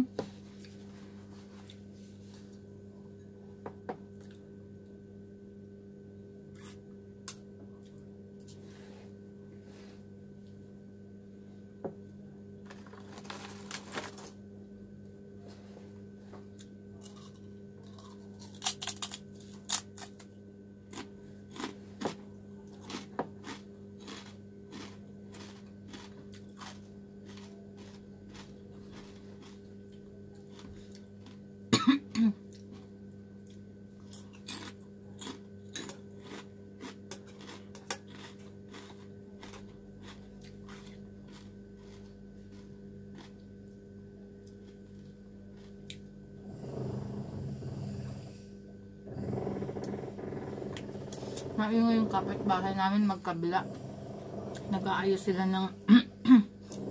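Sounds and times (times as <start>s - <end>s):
steady low hum: 0.0s - 56.9s
slurping and chewing noodles: 21.0s - 31.4s, 34.0s - 43.4s.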